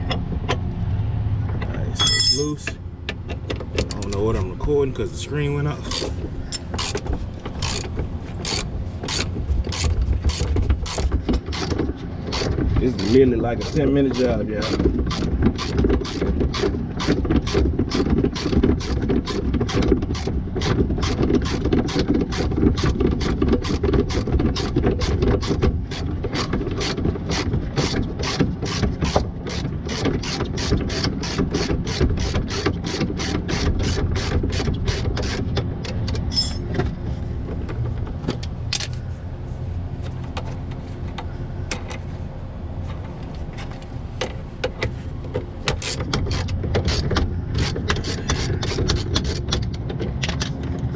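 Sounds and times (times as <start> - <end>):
ratchet wrench clicking: 5.9 - 7.0, 7.6 - 11.7.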